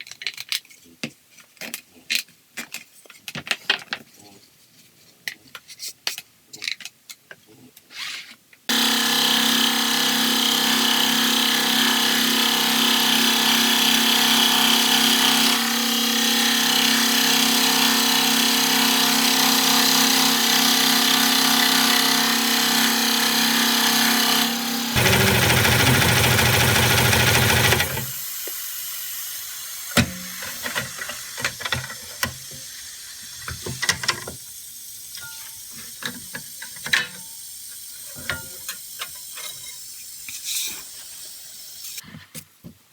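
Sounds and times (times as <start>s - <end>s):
power tool motor running: 8.7s - 28.7s
low loud machine sound: 24.0s - 28.2s.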